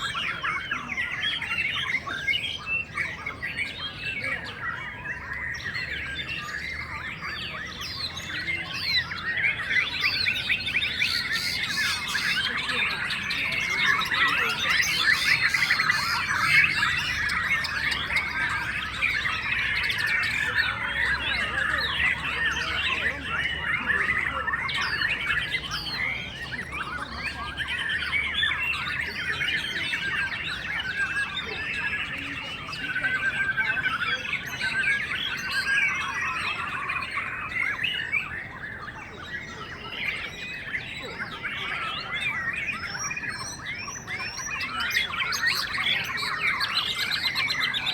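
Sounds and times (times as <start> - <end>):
chorus of birds whistling: 0.0 - 47.9.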